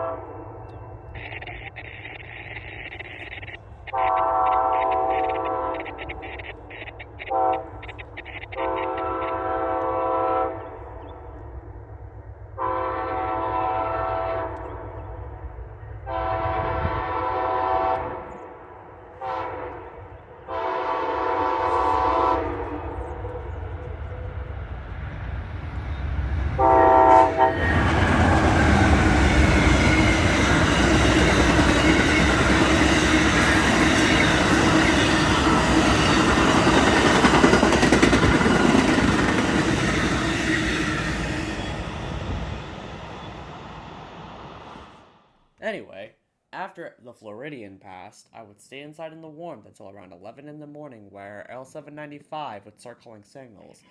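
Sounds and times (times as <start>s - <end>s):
locomotive horn blasts: 0.0s - 0.6s, 3.9s - 5.9s, 7.3s - 7.8s, 8.6s - 10.7s, 12.6s - 14.6s, 16.1s - 18.4s, 19.2s - 23.4s, 26.6s - 34.1s
train passing with rushing rumble: 0.0s - 45.3s.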